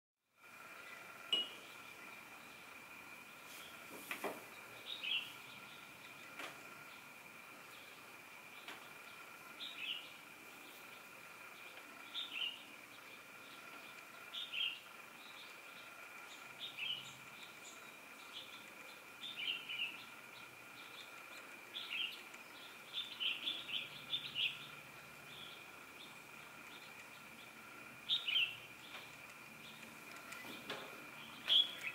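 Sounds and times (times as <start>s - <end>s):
faint steady whine: 0.3s - 31.9s
birds chirping: 0.4s - 31.9s.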